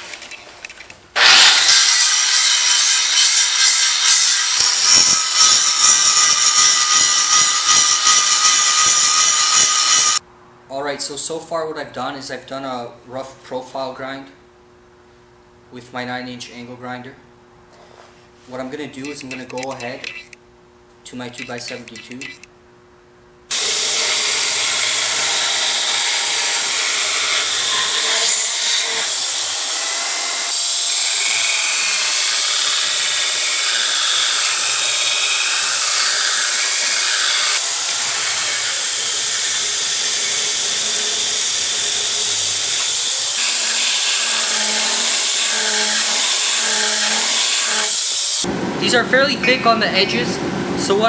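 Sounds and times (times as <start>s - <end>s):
belt grinder grinding steel: 1.2s - 10.2s, 23.5s - 48.5s.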